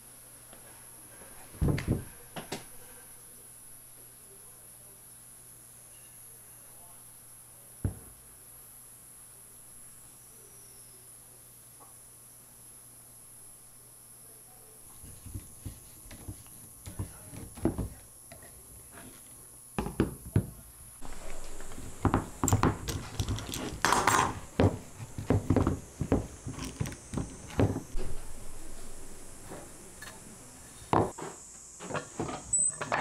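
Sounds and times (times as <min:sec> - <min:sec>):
tools clattering on workbench: 0:21.0 - 0:28.2.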